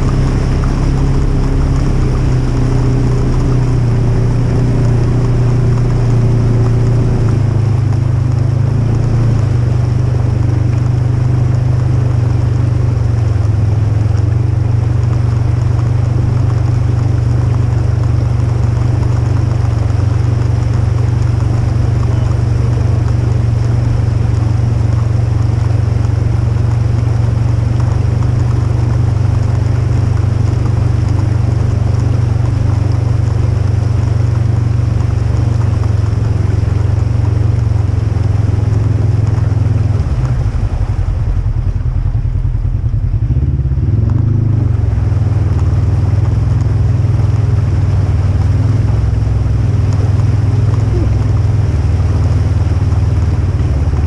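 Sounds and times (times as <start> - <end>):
engine low drone: 0.0 - 54.0.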